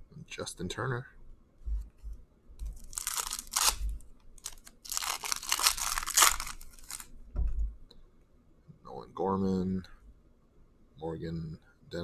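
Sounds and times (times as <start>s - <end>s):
foil wrapper tearing and crinkling: 2.7s - 7.1s.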